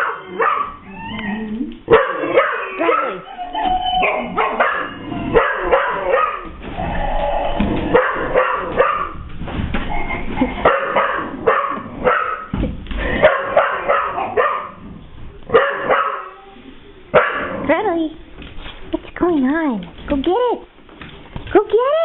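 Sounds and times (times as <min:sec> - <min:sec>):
dog barking and yipping: 0:00.0 - 0:00.8, 0:01.9 - 0:06.6, 0:07.9 - 0:09.2, 0:10.6 - 0:12.5, 0:13.2 - 0:14.8, 0:15.5 - 0:16.4.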